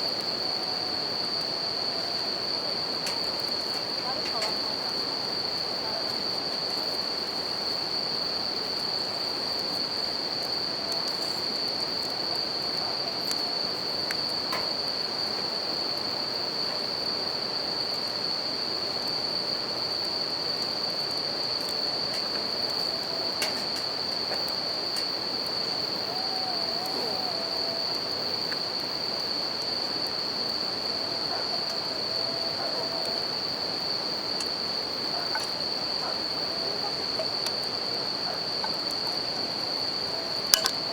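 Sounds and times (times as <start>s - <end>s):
crickets trilling: 0.0s - 40.9s
wood fire crackling: 1.8s - 16.1s.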